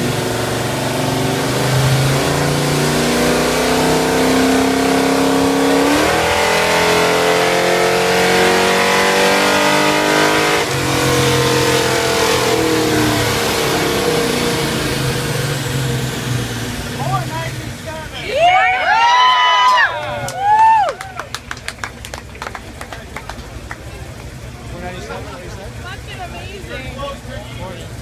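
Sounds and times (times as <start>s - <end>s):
engine revving at full throttle: 0.0s - 18.1s.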